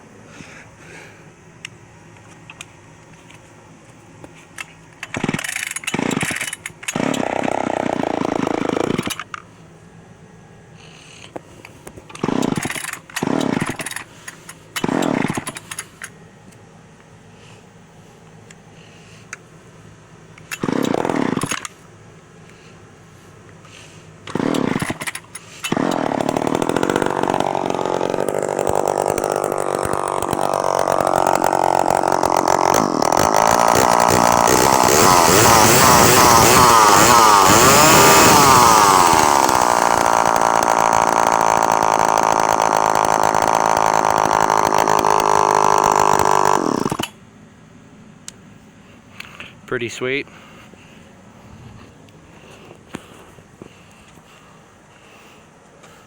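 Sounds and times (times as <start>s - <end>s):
chainsaw starting and revving: 5.0s - 9.3s, 12.1s - 16.0s, 20.5s - 21.8s, 24.2s - 47.2s.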